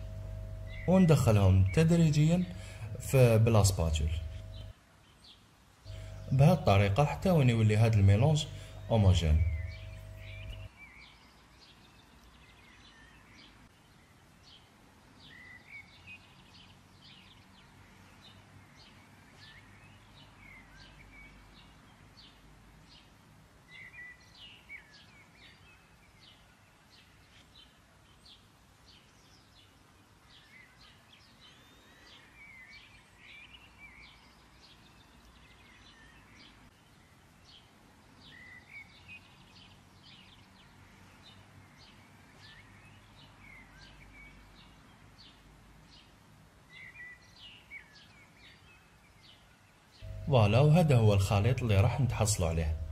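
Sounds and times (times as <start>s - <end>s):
birds chirping: 0.0s - 4.7s, 5.9s - 11.1s, 50.0s - 52.9s
low steady hiss: 0.0s - 52.9s.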